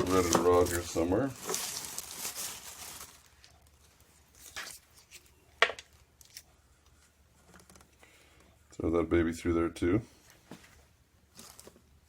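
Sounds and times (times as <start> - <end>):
rummaging among small parts: 0.0 - 5.3, 11.3 - 12.0.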